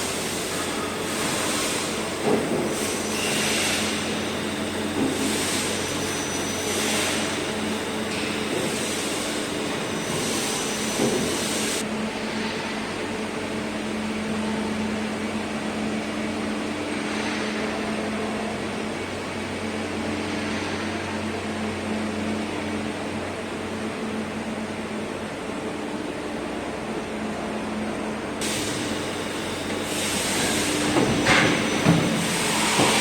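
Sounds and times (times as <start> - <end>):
machine mechanical hum: 0.0 - 33.0
high hiss: 28.4 - 33.0.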